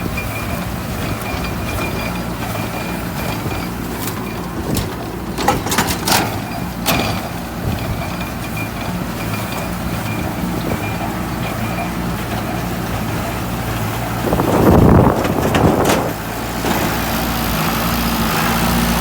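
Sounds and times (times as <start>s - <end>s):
diesel tractor running: 0.0s - 19.0s
hay baler metallic clacks: 0.0s - 19.0s.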